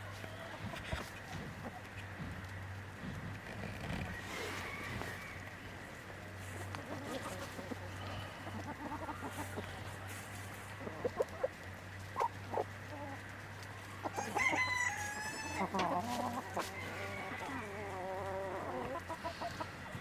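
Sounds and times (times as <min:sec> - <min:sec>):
chickens clucking: 0:00.0 - 0:20.0
rooster crowing: 0:04.1 - 0:05.6, 0:14.0 - 0:19.3.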